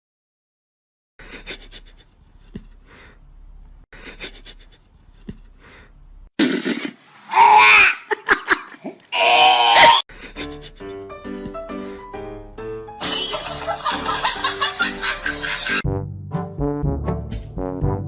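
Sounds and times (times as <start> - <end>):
wheezing laughter: 1.2 - 2.2, 4.0 - 5.2, 10.1 - 11.0, 13.6 - 15.8.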